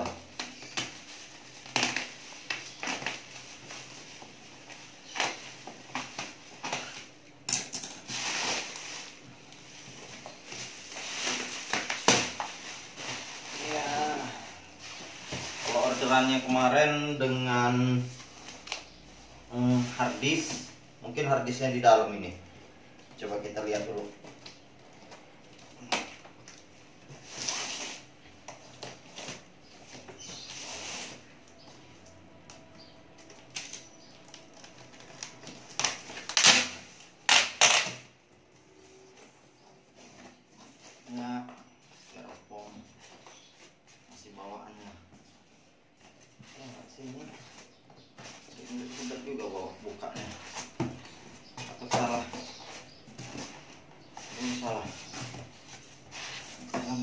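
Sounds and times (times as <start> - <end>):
packaging rustling and scraping: 0.3 - 17.0, 25.6 - 38.0, 45.2 - 57.0.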